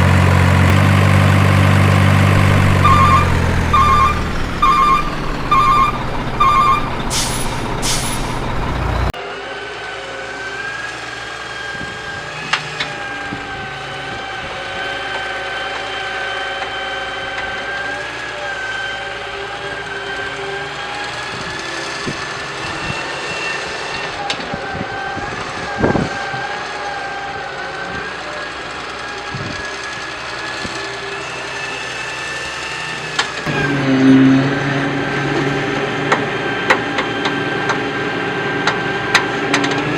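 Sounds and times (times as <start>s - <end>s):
steady motor whine: 0.0s - 39.9s
reversing beeps: 2.8s - 7.1s
air-brake hisses: 7.0s - 8.9s.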